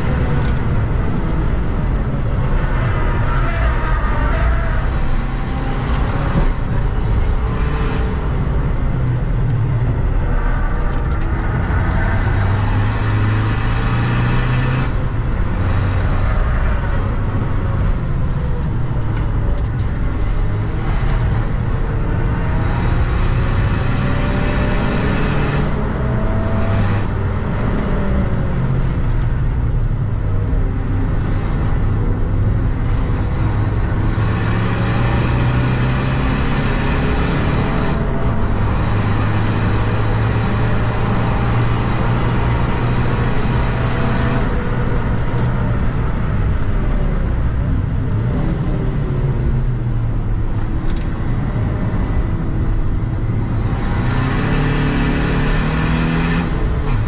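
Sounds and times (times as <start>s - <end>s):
road and tyre noise: 0.0s - 57.0s
diesel engine revving: 31.1s - 46.6s, 47.3s - 57.0s.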